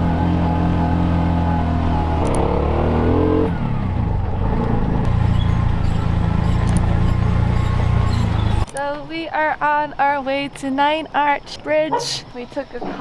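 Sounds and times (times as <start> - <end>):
vehicle engine accelerating: 0.0 - 8.7.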